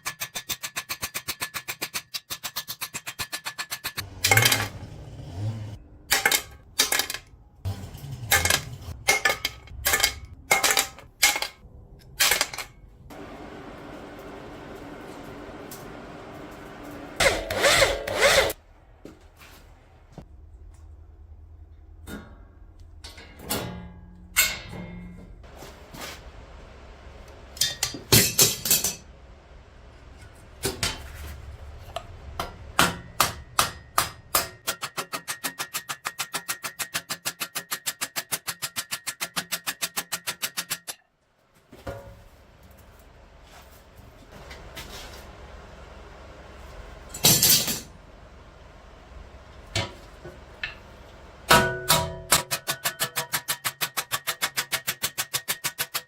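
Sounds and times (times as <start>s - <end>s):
steady low hum: 24.9s - 34.6s, 41.8s - 52.3s
sharp metal strikes: 51.5s - 53.2s.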